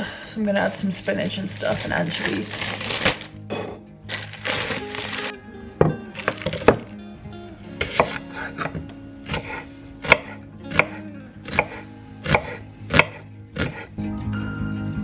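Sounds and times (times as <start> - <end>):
guitar music: 0.5 - 15.0
knife chopping on a board: 7.8 - 13.9.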